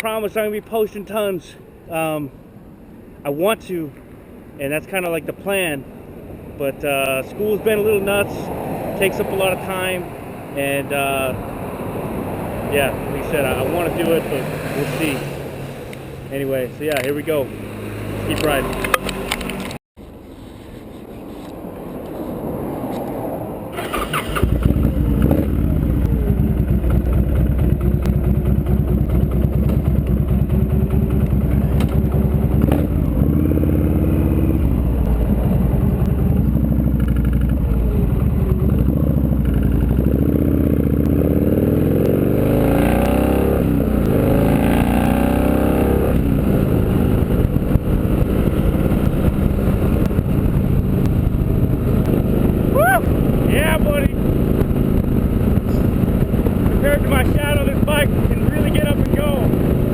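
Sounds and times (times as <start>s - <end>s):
motorcycle engine revving: 11.3s - 19.8s, 23.7s - 59.9s.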